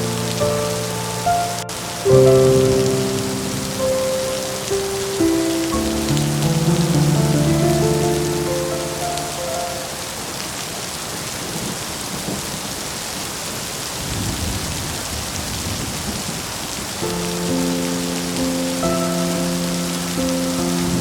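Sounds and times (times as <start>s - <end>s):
soft sustained music chords: 0.0s - 10.2s
heavy rain falling: 0.0s - 21.0s
low rolling thunder: 14.0s - 16.4s.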